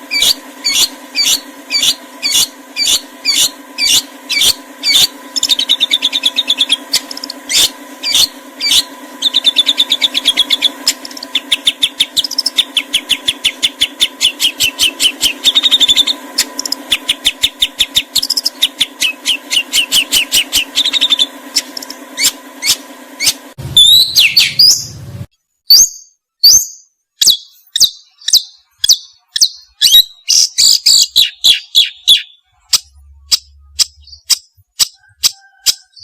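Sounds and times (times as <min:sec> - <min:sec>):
faint steady hum: 0:00.0 - 0:25.3
songbird chips and trills: 0:00.1 - 0:24.8.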